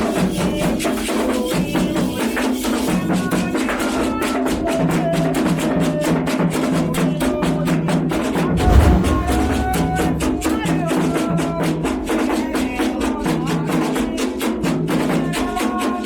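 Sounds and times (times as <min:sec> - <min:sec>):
hand drums and percussion: 0:00.0 - 0:07.8, 0:12.8 - 0:16.0.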